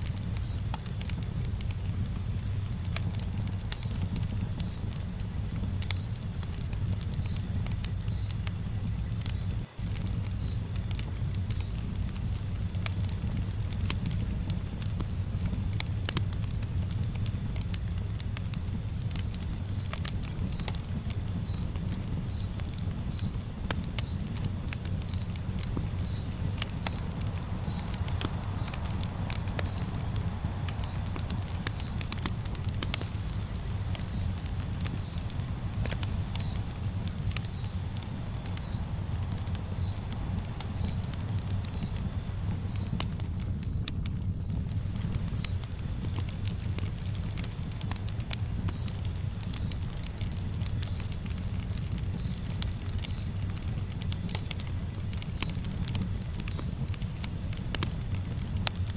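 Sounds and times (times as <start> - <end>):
campfire flames rumbling: 0.0 - 58.9
wood crackling and popping: 0.0 - 58.9
low rumble: 19.5 - 45.4
faint high chirp: 19.6 - 43.0.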